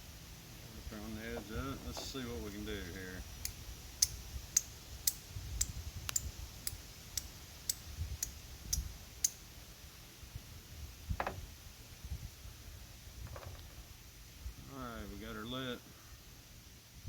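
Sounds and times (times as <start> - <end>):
steel striker clicking on flint: 3.4 - 9.4.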